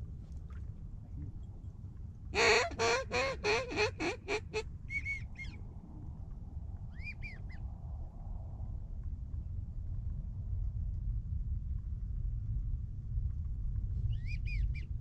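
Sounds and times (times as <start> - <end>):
duck call quacks: 2.4 - 4.6.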